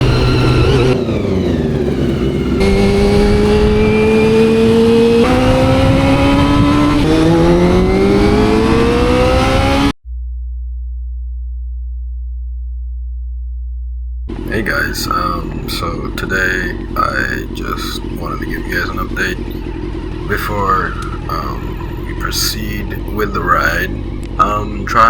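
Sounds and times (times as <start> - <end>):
motorcycle engine revving hard: 0.0 - 9.9, 14.3 - 25.0
steady low hum: 14.2 - 25.0.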